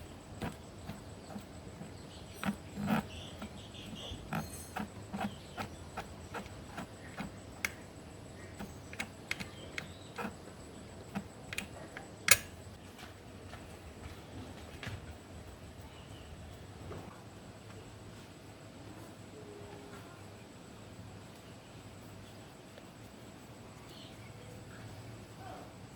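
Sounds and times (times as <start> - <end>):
tools clicking and tapping: 0.0 - 12.8.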